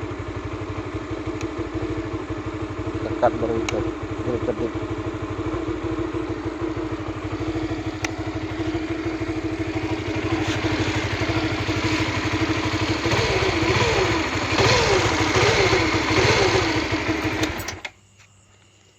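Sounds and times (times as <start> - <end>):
motorcycle engine idling: 0.0 - 17.8
engine throttle blips: 3.0 - 17.9.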